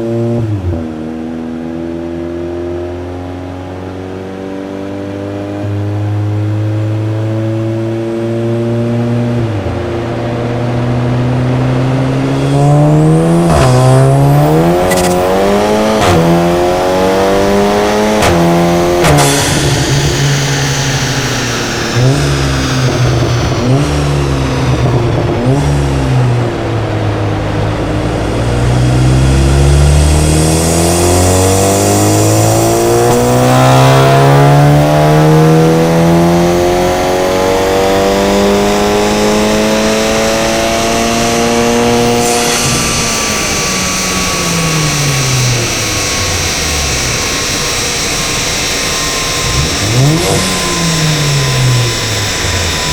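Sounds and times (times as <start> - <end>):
car engine revving on dyno: 0.0 - 52.9
exhaust crack: 9.6 - 34.9, 38.6 - 52.9.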